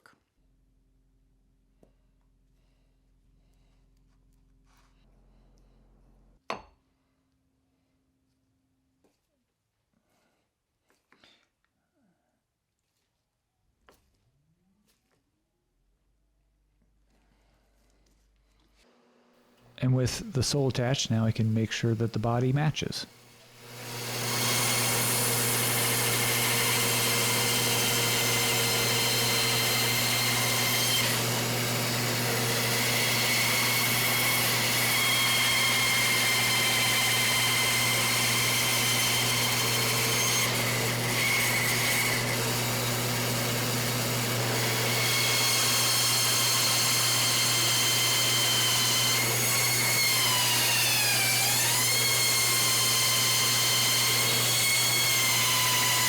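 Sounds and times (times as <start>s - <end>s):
sander motor hum and whine: 23.6s - 56.0s.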